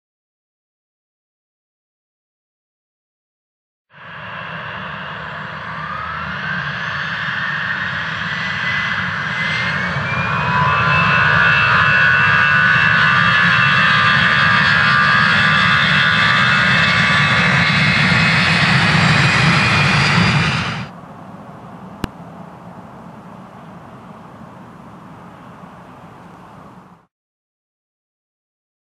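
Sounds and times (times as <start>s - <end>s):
jet engines spooling up: 4.0s - 21.0s.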